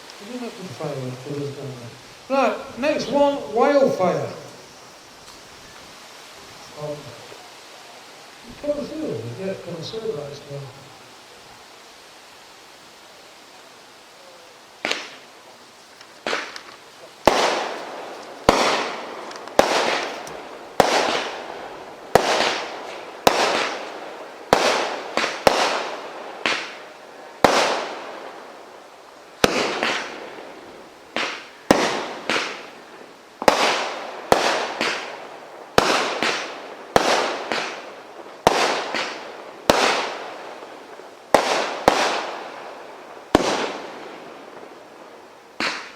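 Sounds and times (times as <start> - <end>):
firework cake bangs: 14.8 - 15.3, 16.2 - 28.2, 29.4 - 30.4, 31.1 - 42.6, 43.3 - 44.0, 45.6 - 45.9.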